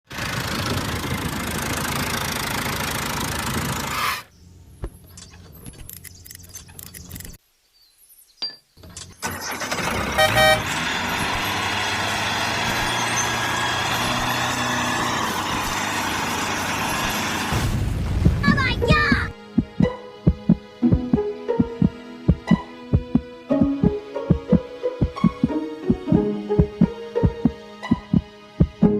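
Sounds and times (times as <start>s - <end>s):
tractor motor running: 0.1s - 4.1s, 8.8s - 17.6s
scattered clicks: 5.1s - 7.4s
loud horn-like beep: 10.2s - 10.7s.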